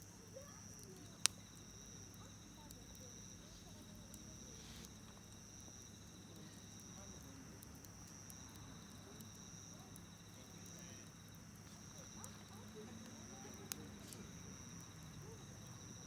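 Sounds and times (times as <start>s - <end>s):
campfire crackling and popping: 0.0s - 16.0s
crickets trilling: 0.0s - 16.0s.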